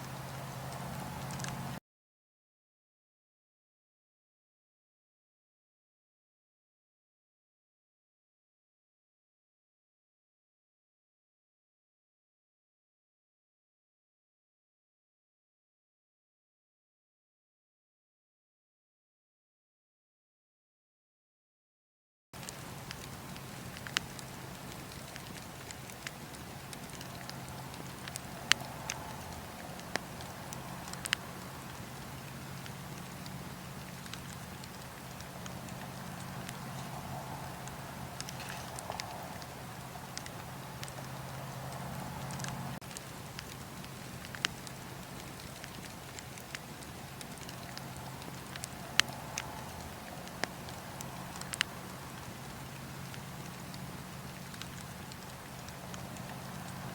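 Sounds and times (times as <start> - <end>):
bonfire crackling and popping: 0.0 - 1.8, 22.4 - 56.9
faint steady hiss: 0.0 - 1.8, 22.4 - 56.9
steady low hum: 0.0 - 1.8, 22.4 - 56.9.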